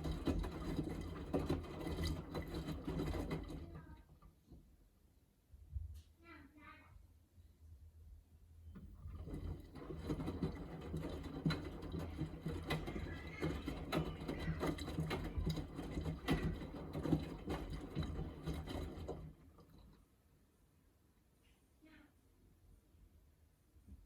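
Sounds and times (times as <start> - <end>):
washing machine drum turning: 0.0 - 3.6, 8.8 - 19.8
wet laundry knocking and sloshing: 0.0 - 3.7, 8.8 - 19.8.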